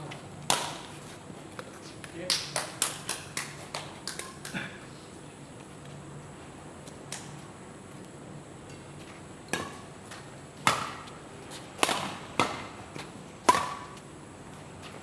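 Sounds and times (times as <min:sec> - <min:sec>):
rackets hitting shuttlecock: 0:09.5 - 0:11.1, 0:11.8 - 0:14.0.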